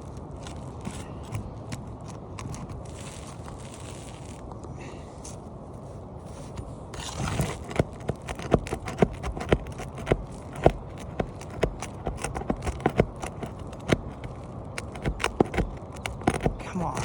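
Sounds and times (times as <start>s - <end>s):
scraping rustle: 0.0s - 17.0s
hand tool knocking on shingles: 7.6s - 17.0s.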